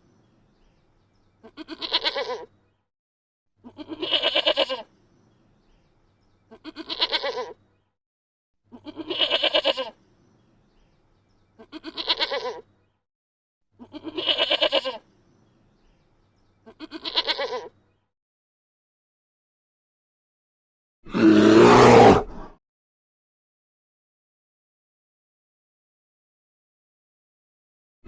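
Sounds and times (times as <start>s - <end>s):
farm animal bleating: 1.4s - 2.5s, 3.6s - 4.9s, 6.5s - 7.6s, 8.7s - 10.0s, 11.6s - 12.7s, 13.8s - 15.1s, 16.6s - 17.8s.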